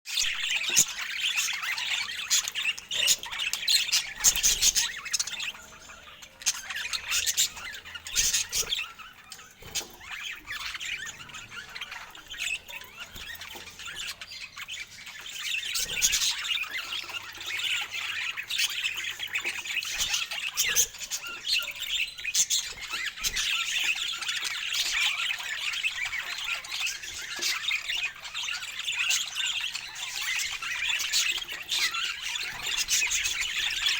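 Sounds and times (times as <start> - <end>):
budgerigars chattering and squawking: 0.1 - 33.9.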